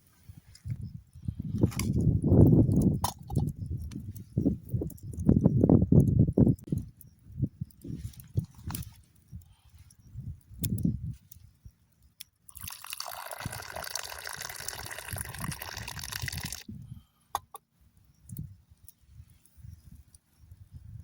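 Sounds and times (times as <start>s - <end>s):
tea pouring: 12.5s - 16.6s.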